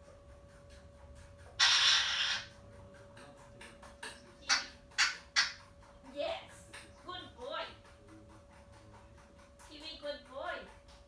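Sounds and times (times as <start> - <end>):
parrot harsh hissing call: 1.6 - 2.5
parrot squawks: 1.6 - 2.5.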